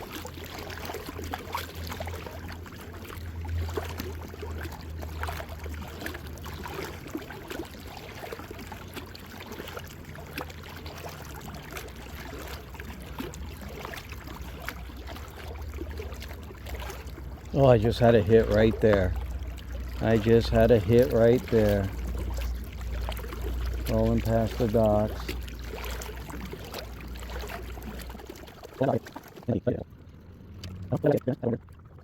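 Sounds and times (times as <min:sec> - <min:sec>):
water splashing around a boat: 0:00.0 - 0:32.0
steady low rumble: 0:10.0 - 0:32.0.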